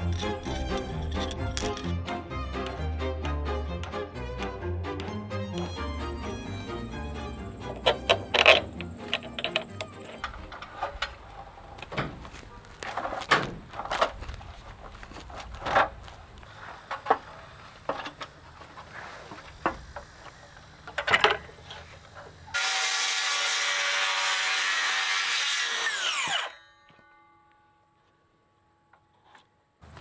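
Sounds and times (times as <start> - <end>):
wood and tools knocking: 0.0 - 2.0, 7.6 - 14.3
electric power tool running: 6.0 - 10.3, 22.5 - 26.5.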